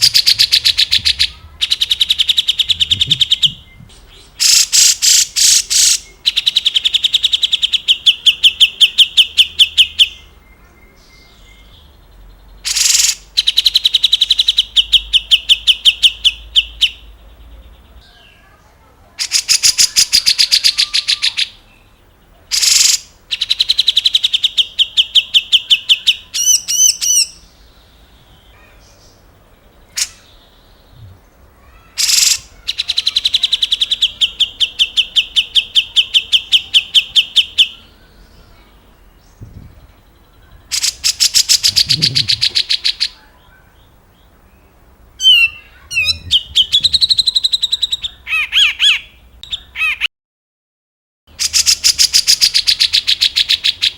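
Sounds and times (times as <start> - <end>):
short sharp bird calls: 0.0 - 7.3, 12.6 - 16.2, 22.5 - 24.3, 29.9 - 37.8
bird chattering trills: 0.0 - 10.4, 12.6 - 17.2, 19.2 - 21.6, 22.5 - 39.0, 39.6 - 44.4, 45.2 - 50.1, 51.3 - 53.9.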